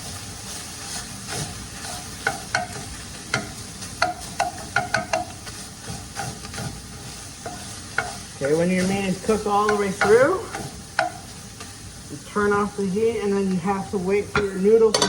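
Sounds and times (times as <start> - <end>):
meat sizzling in a pan: 0.0 - 15.0
utensil clicking and scraping pan: 0.8 - 11.7.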